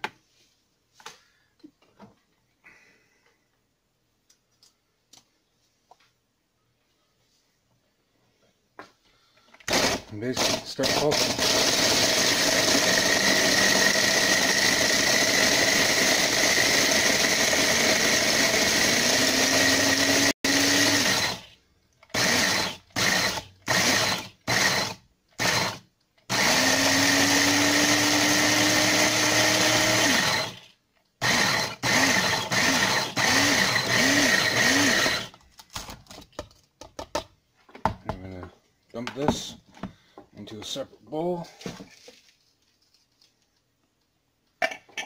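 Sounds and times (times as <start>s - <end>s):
food processor grinding cookies: 9.7s - 35.3s.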